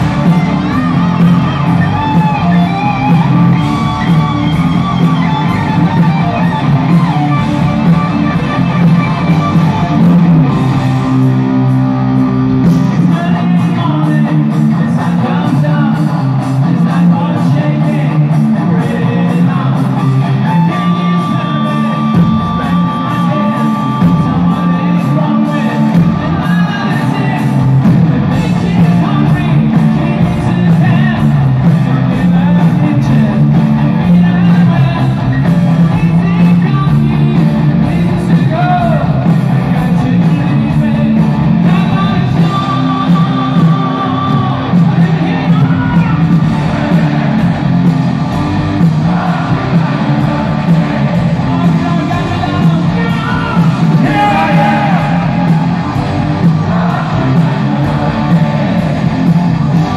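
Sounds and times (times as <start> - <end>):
bass and drums: 0.0 - 59.9
electric guitars: 0.0 - 59.9
person singing: 32.0 - 46.2, 49.0 - 55.8.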